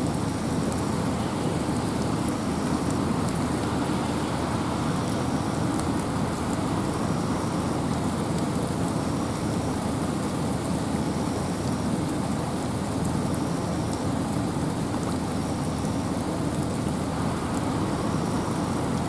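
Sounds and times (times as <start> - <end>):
water drips ticking: 0.0 - 10.8
rain and wind rushing: 0.0 - 19.0.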